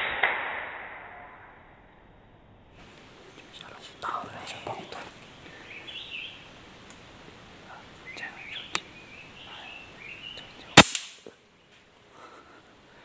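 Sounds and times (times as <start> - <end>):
air rifle shot crack: 0.0 - 1.2, 10.8 - 11.3
small birds chirping: 2.8 - 13.0.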